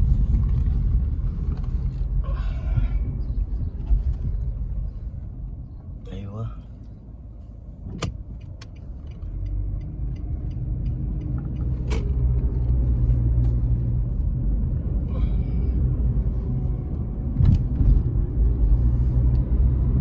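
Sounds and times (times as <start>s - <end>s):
car road and engine rumble: 0.0s - 20.0s
light regular ticking: 8.0s - 12.2s.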